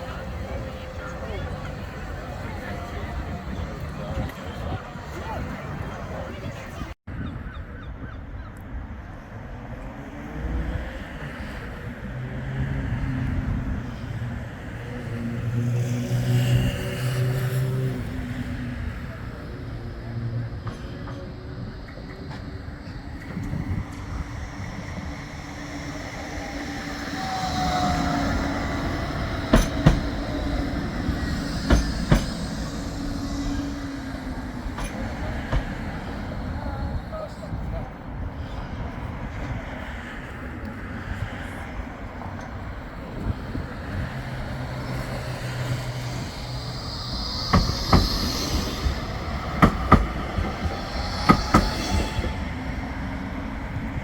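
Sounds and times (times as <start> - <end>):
tram passing: 0.0 - 7.0, 8.6 - 54.0
wheels clicking over rail joints: 20.6 - 36.6, 42.4 - 52.9.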